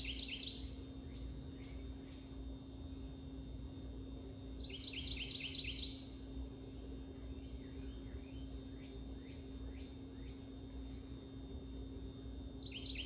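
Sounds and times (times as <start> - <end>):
steady low hum: 0.0 - 13.0
birds chirping: 12.6 - 13.0.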